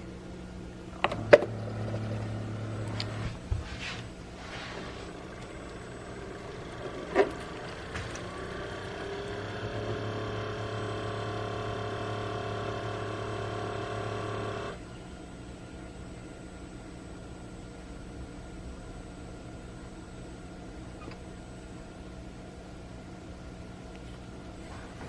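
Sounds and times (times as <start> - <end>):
faint background hum: 0.0 - 25.0
coffee maker pump motor humming: 0.8 - 15.0.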